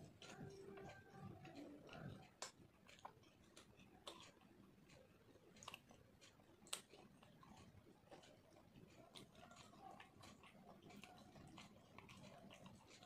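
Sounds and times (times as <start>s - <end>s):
chewing fried food: 0.0s - 13.0s.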